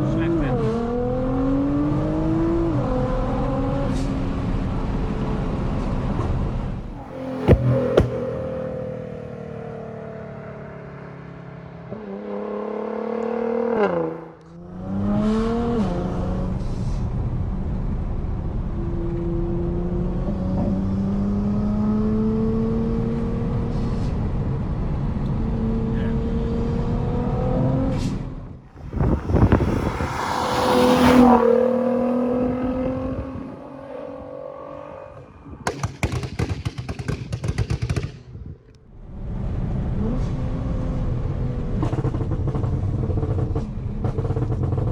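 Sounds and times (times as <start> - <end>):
exhaust cracks: 6.8 - 9.3, 28.7 - 33.3
car engine revving: 6.8 - 11.0, 25.5 - 35.6
turbo rushing surge: 28.7 - 33.2.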